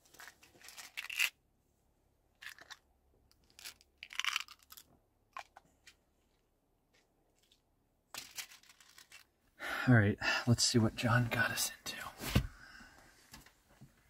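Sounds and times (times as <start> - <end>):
pills rattling in plastic bottle: 0.1 - 1.4, 2.4 - 5.6, 7.5 - 9.4
pills being chewed: 2.4 - 5.5.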